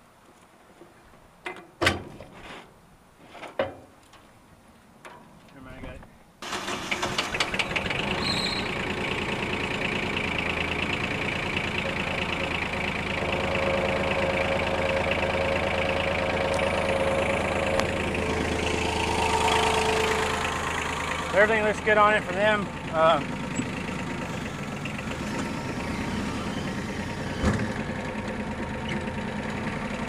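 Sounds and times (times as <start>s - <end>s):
tractor engine starting and idling: 6.4s - 30.0s.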